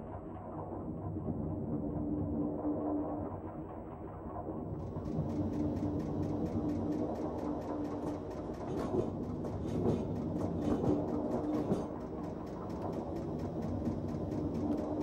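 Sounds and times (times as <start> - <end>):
low hum: 4.7 - 15.0
train clickety-clack: 4.8 - 15.0.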